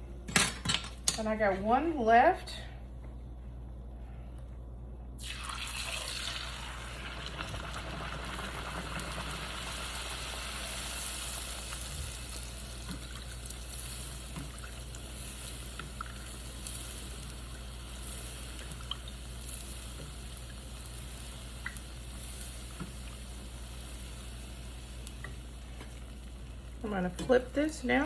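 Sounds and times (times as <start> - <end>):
oil sizzling in a pan: 5.2 - 28.0.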